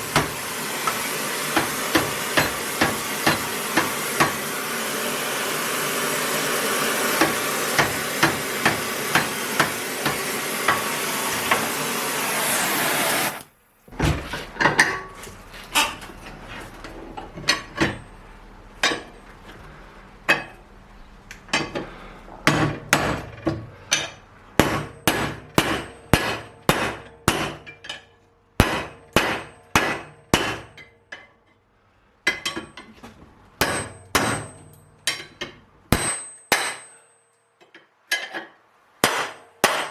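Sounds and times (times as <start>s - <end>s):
hammer blows with metallic ring: 23.9s - 30.9s, 33.6s - 37.6s.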